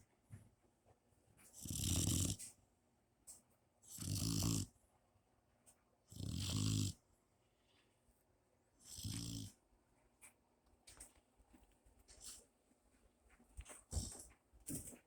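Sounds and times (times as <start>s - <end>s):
puppy snoring: 1.5s - 2.6s, 3.8s - 4.8s, 6.1s - 7.0s, 8.8s - 9.6s, 13.9s - 14.3s.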